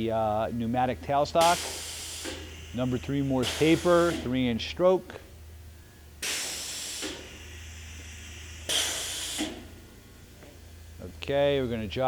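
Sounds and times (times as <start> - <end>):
low machine hum: 0.0 - 12.0
compressed air hisses: 1.4 - 4.4, 6.2 - 9.9.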